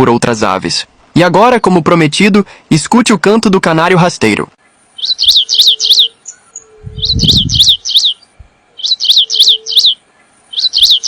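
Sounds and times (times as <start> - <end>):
finch singing: 5.0 - 11.0.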